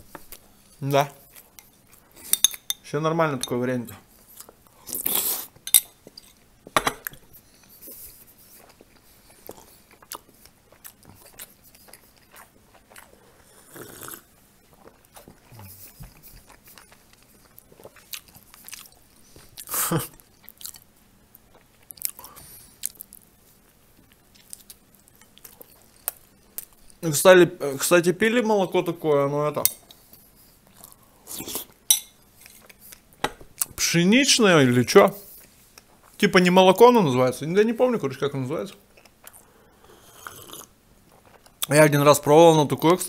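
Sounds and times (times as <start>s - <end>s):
person chewing and mouth noises: 7.0s - 27.0s, 29.8s - 31.8s, 38.8s - 41.7s.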